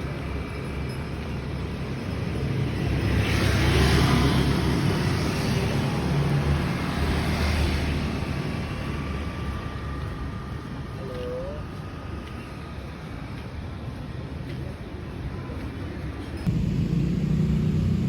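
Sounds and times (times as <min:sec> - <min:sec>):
rumble of passing vehicles: 0:00.0 - 0:18.0
vehicle going by: 0:16.5 - 0:18.0.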